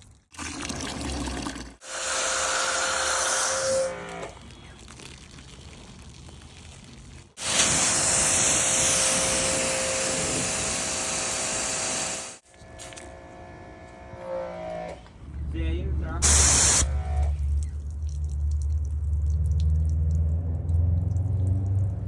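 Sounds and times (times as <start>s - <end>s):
pressure washer spraying water: 7.4s - 12.4s, 16.2s - 16.9s.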